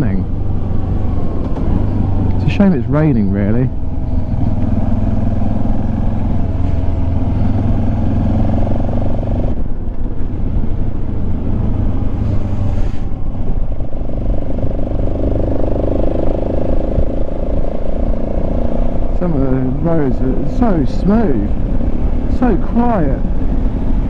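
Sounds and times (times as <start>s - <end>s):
motorcycle engine running: 0.0s - 12.4s, 13.1s - 24.0s
road and wind noise: 0.0s - 24.0s.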